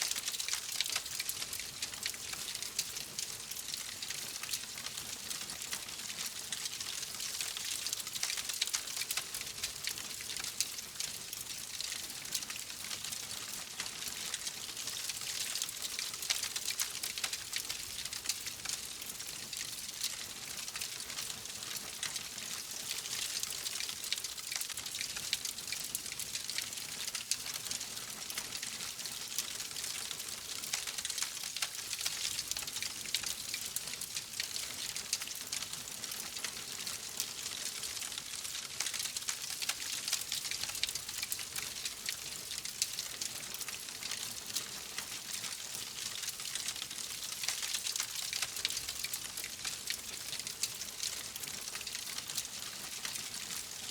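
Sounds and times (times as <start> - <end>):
wood fire crackling: 0.0 - 53.6.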